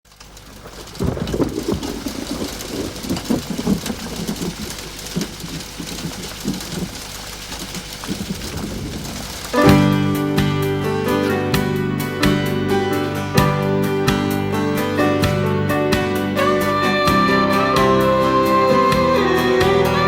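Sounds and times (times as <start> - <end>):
low thunder rumbles: 0.1 - 20.0
rain hiss: 0.1 - 20.0.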